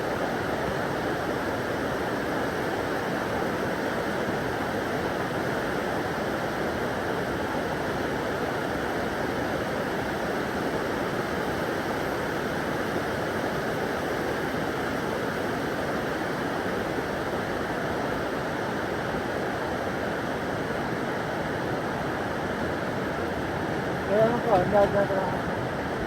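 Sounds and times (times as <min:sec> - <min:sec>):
steady rushing noise: 0:22.1 - 0:26.0.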